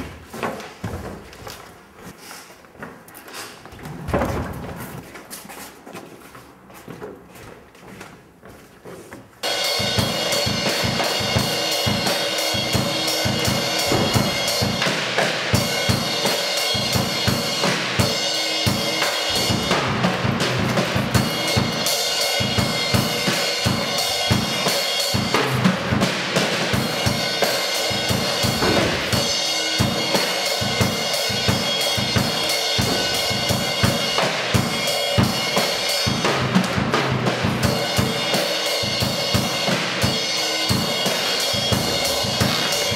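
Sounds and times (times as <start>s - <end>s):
drum kit solo: 9.4s - 42.9s.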